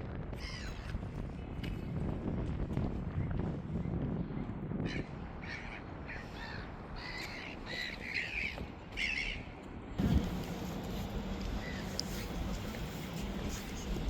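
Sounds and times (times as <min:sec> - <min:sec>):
low background rumble: 0:04.5 - 0:14.0
bird calling: 0:05.0 - 0:09.5, 0:11.5 - 0:12.2.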